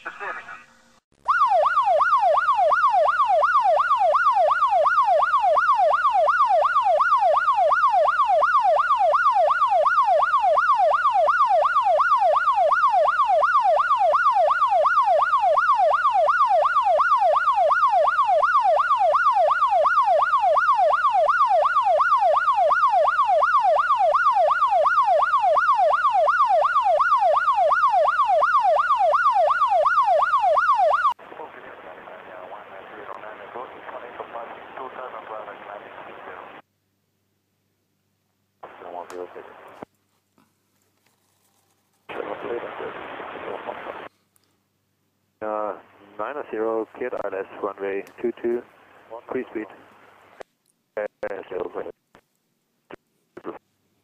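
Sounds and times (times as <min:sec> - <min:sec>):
electronic siren yelping: 0:01.2 - 0:31.2.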